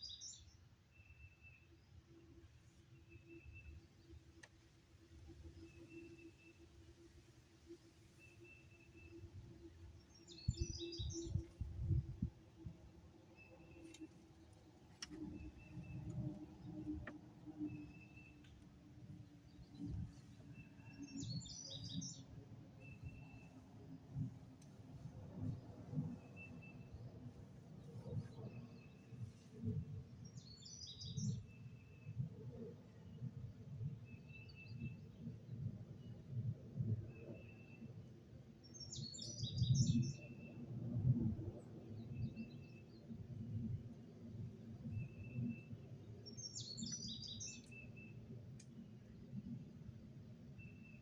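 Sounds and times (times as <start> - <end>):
faint sharp clicks: 4.4 - 4.7, 13.8 - 17.2, 24.6 - 24.8, 48.5 - 48.8.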